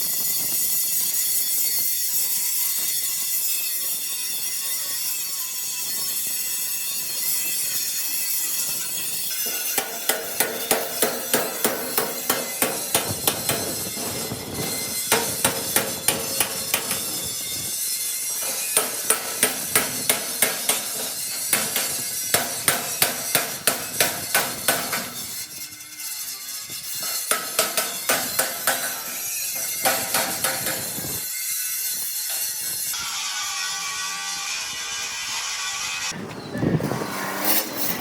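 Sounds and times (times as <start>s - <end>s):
hammer striking sheet steel: 9.3s - 25.7s, 26.9s - 31.2s.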